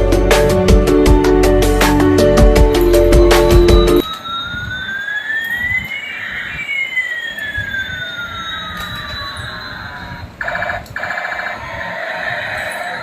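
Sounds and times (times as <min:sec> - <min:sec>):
toy jet whistling tones: 0:03.6 - 0:13.0.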